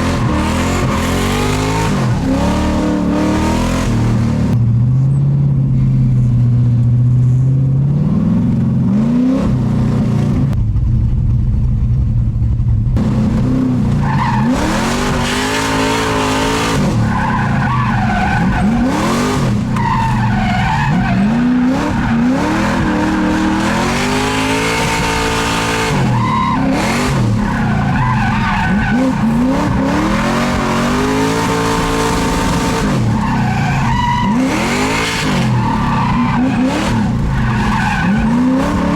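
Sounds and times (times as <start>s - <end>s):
car engine revving: 0.0s - 38.9s
tyres squealing: 14.0s - 38.9s.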